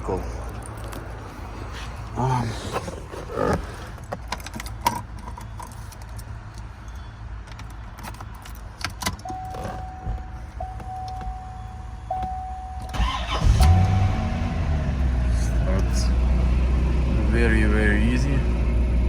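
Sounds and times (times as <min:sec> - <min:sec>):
car keys jangling: 0:00.3 - 0:14.0.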